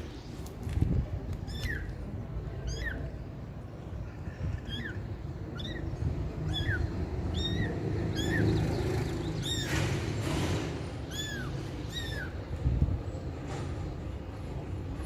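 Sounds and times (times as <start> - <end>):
kittens mewing: 4.1 - 8.5, 11.0 - 12.4.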